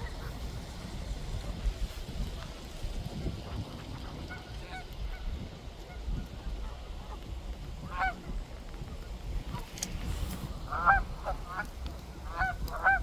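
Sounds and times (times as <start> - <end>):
waterfowl calling: 7.8 - 8.4, 10.5 - 13.0.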